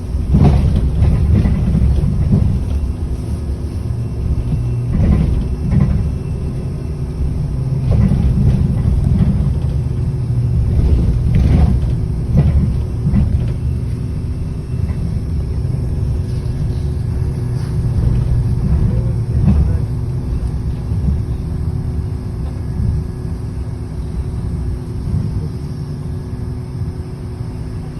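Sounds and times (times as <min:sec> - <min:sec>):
short knocks and rattles: 0:00.0 - 0:21.2
bus engine and road rumble: 0:00.0 - 0:27.9
faint steady hum: 0:00.0 - 0:27.9.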